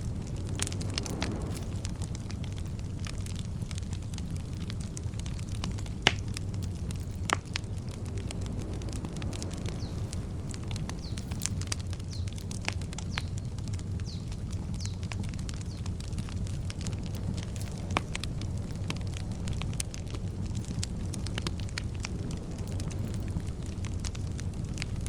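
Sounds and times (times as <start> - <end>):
campfire crackling and popping: 0.0 - 25.0
steady low rumble: 0.0 - 25.0
bird chirping: 9.6 - 12.4, 13.0 - 15.9.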